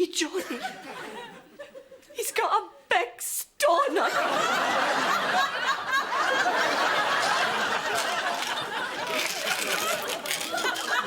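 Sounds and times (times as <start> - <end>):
audience laughing: 0.4 - 2.1, 4.0 - 11.0.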